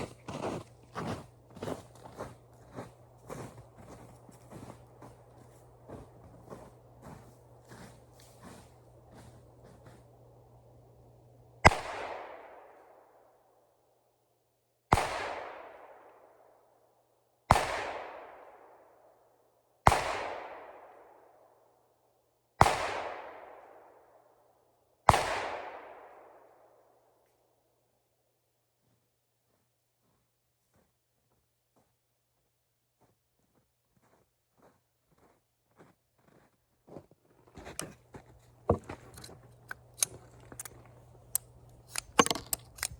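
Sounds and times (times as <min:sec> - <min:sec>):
revolver gunshots with echo: 0:11.6 - 0:13.2, 0:14.9 - 0:16.3, 0:17.5 - 0:18.8, 0:19.9 - 0:21.2, 0:22.6 - 0:24.0, 0:25.1 - 0:26.6.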